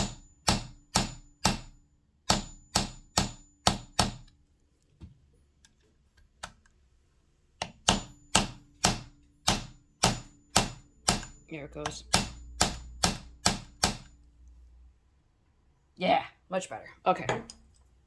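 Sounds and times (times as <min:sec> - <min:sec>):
sharp ringing taps on metal: 0:00.0 - 0:04.3, 0:07.6 - 0:14.2.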